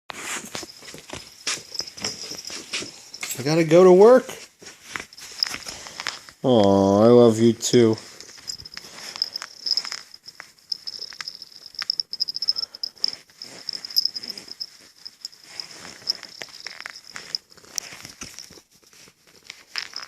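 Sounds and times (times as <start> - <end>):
fur rustling against clothes: 7.8 - 20.0.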